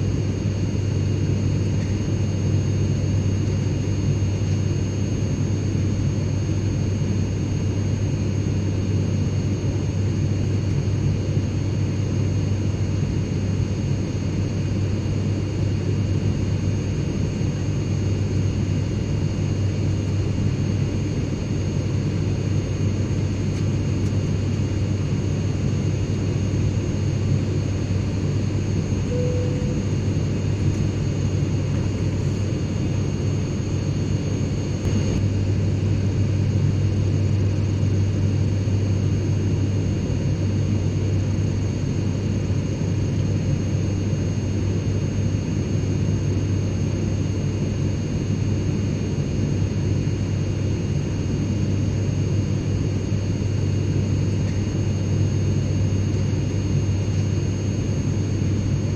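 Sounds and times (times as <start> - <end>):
airliner cabin rumble: 20.2 - 38.3
faint high whines: 27.4 - 33.8.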